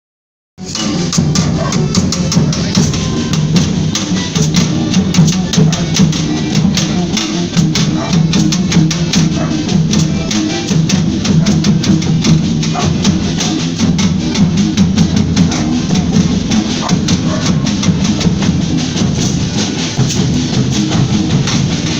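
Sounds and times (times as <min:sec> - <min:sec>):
band playing: 0:00.6 - 0:21.9
drums: 0:00.6 - 0:21.9
rapid percussion strokes: 0:00.6 - 0:21.9.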